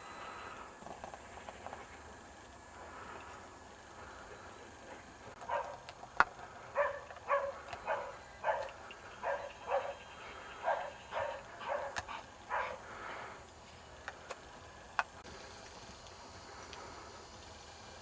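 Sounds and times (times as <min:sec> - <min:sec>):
dog barking: 0:05.4 - 0:05.8, 0:06.8 - 0:10.0, 0:10.6 - 0:12.8.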